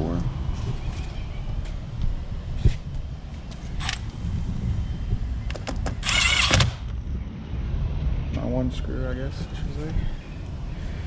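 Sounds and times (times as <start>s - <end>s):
screw gun whirring: 3.8s - 4.1s, 6.0s - 6.9s.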